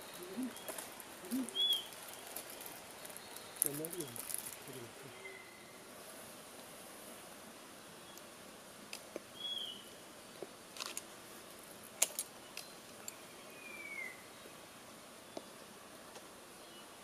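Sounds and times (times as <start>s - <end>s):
whistled bird notes: 0.0s - 1.9s, 5.1s - 5.8s, 9.4s - 9.9s, 13.2s - 14.3s
faint background hiss: 0.0s - 17.0s.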